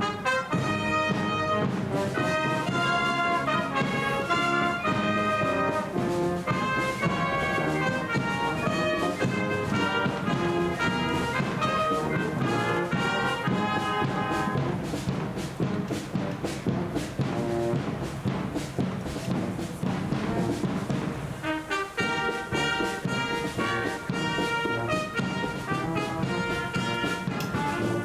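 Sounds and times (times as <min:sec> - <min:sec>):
brass band playing: 0:00.0 - 0:28.0
drum strokes: 0:00.0 - 0:28.0.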